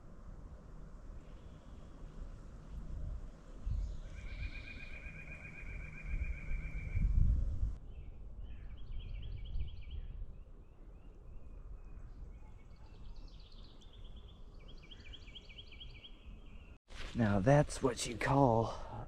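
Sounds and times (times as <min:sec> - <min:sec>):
low rumble of wind: 0:00.0 - 0:19.0
bird trilling song: 0:03.6 - 0:16.8.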